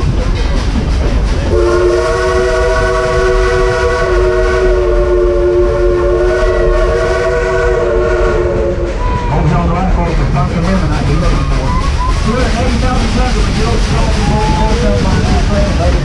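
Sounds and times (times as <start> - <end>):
train rumble and clatter: 0.0 - 16.0
steam locomotive chime whistle: 1.5 - 9.3.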